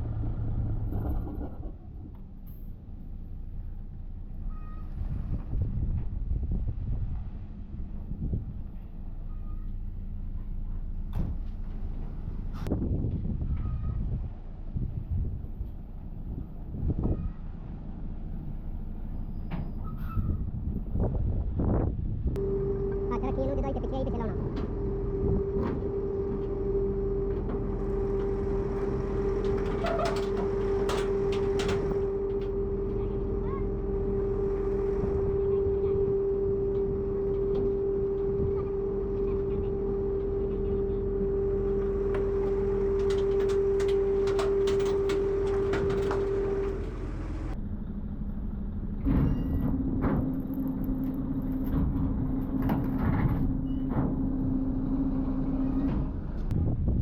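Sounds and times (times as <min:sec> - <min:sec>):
machine humming: 0:22.4 - 0:47.6.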